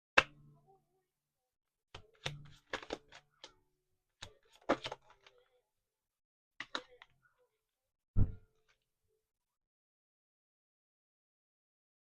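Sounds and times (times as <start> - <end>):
cards tapping and clicking on table: 1.9 - 3.5, 4.2 - 5.3.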